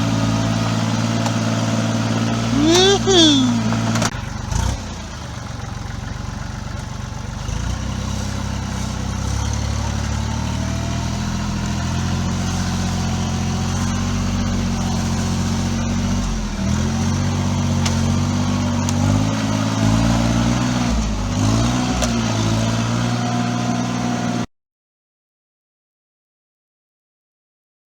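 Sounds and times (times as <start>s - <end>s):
tractor engine running: 3.6s - 24.4s.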